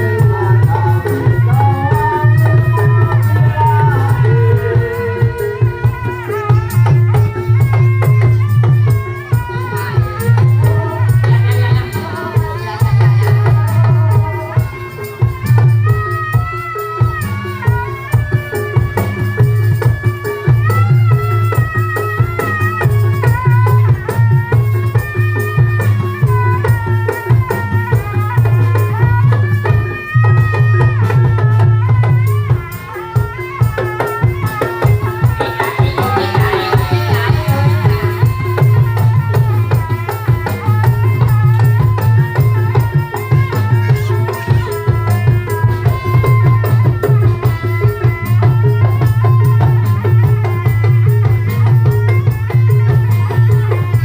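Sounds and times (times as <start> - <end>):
drums: 0.0 - 54.0
rattling percussion: 0.0 - 54.0
wavering sliding melody: 33.5 - 48.3.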